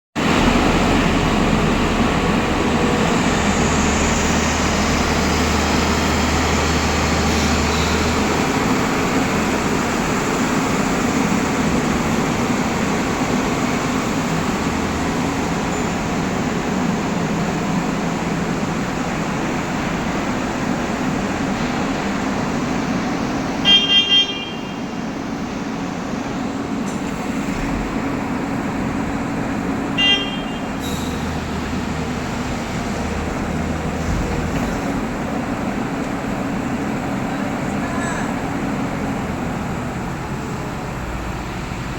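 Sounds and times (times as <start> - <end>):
diesel engine running under load: 0.2 - 41.9.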